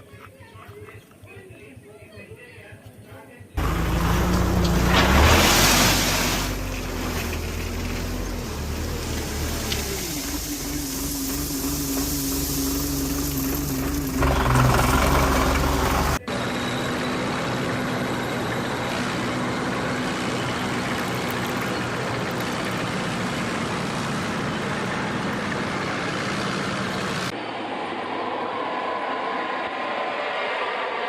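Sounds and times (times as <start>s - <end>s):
vehicle engine running steadily: 3.6s - 27.4s
different engine-like sound: 3.6s - 31.0s.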